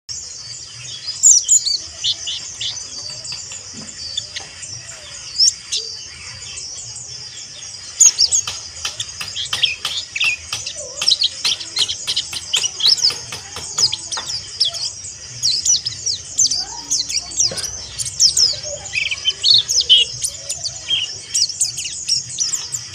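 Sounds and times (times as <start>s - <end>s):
bird twittering chatter: 0.1s - 22.9s.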